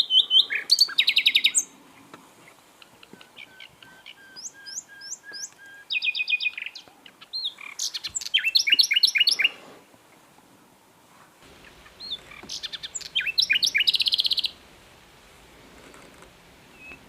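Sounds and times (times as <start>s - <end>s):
nightingale singing: 0.0s - 9.6s, 11.4s - 14.7s, 16.6s - 17.0s.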